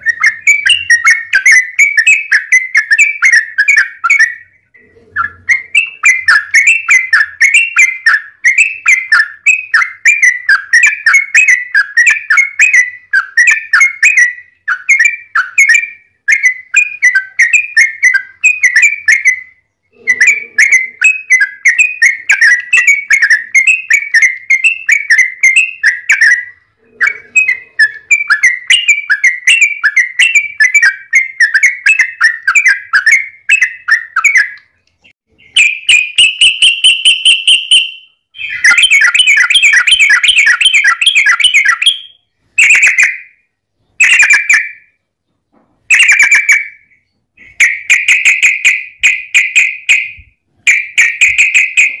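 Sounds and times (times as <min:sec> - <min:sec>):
bulbul singing chirpy notes: 0:00.0 - 0:43.4.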